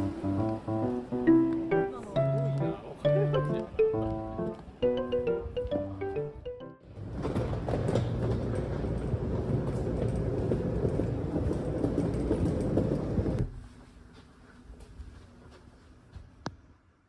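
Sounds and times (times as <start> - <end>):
train rumbling: 0.0 - 3.5, 6.8 - 14.1
wheels clattering: 6.8 - 13.6.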